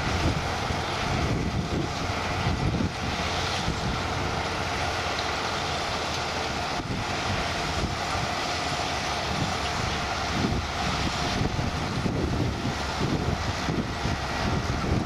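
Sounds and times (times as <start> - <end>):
wind on microphone: 0.0 - 4.4, 9.2 - 15.0
tractor and harvester engines: 0.0 - 15.0.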